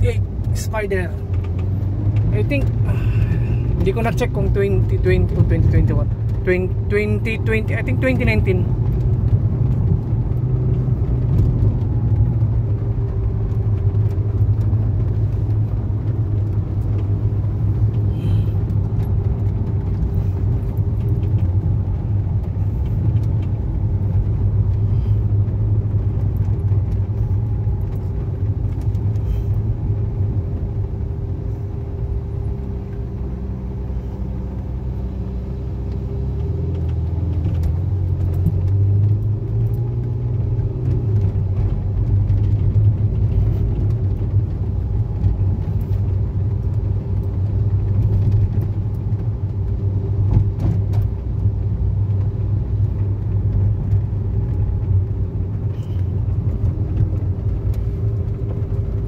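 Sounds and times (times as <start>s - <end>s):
car engine low drone: 0.0s - 59.0s
road noise: 0.0s - 59.0s.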